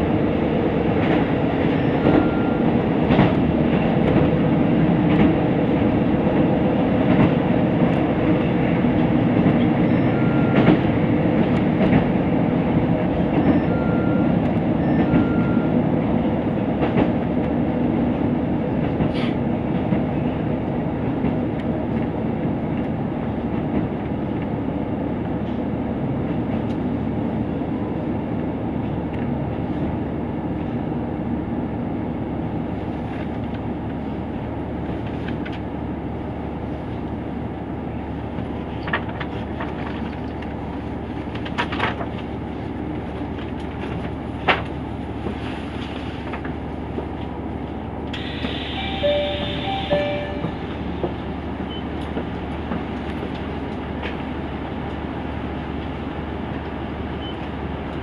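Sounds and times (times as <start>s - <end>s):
train wheels rumbling on rails: 0.0s - 58.0s
rail-joint clacks: 1.0s - 4.3s, 8.9s - 12.2s, 48.1s - 54.3s.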